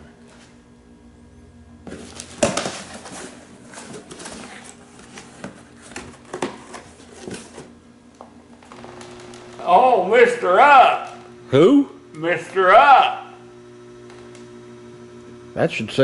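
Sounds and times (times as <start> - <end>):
packaging rustling and crinkling: 1.9 - 7.6.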